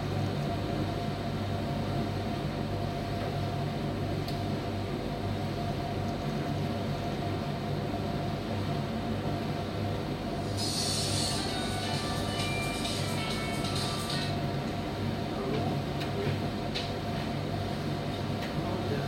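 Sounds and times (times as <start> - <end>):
tumble dryer running: 10.4 - 16.0.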